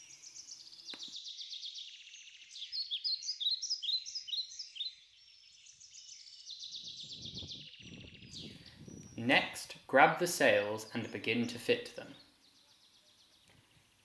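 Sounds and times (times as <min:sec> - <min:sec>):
bird trills and chirps: 0:00.0 - 0:13.7.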